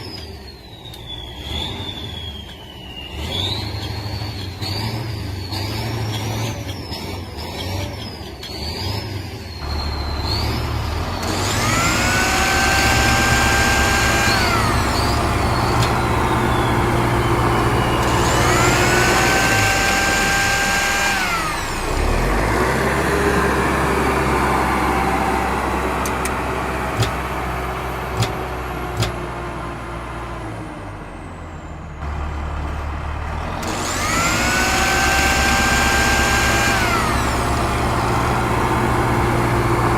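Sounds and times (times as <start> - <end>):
wavering high whistle tone: 0.0 - 5.0, 9.4 - 11.4, 12.0 - 21.8
cartoon engine revving: 9.7 - 24.0, 33.5 - 39.9
sharp clicks: 27.0 - 27.3.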